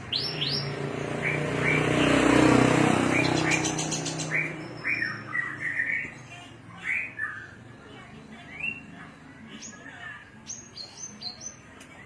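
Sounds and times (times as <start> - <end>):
passing vehicle engine: 0.0 - 5.9
bird chirping: 0.0 - 7.7.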